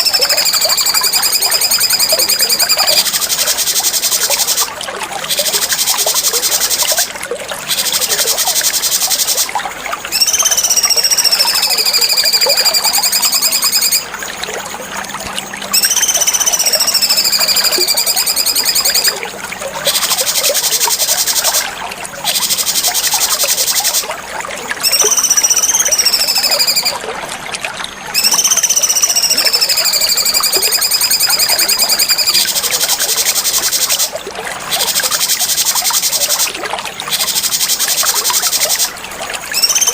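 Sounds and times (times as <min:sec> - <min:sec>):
bird buzzy high chatter: 0:24.8 - 0:27.0, 0:28.2 - 0:32.6.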